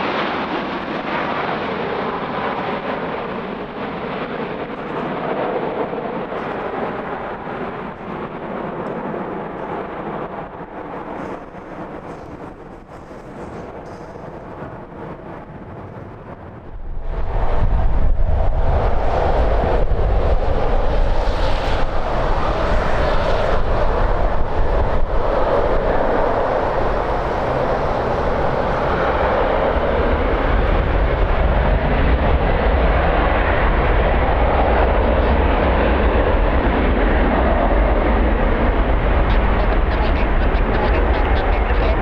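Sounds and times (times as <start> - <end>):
jet engines rushing: 0.0 - 42.0
deep rumble: 10.2 - 42.0.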